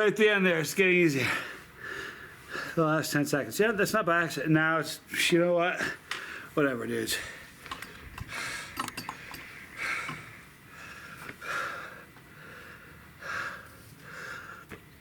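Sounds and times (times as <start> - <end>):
man breathing hard: 1.2 - 2.8, 5.8 - 14.8.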